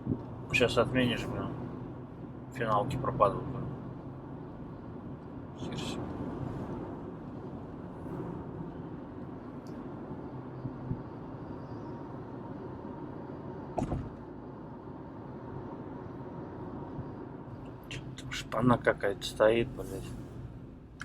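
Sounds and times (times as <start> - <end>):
car road and engine noise: 0.0 - 21.0
sharp knock: 13.8 - 14.1.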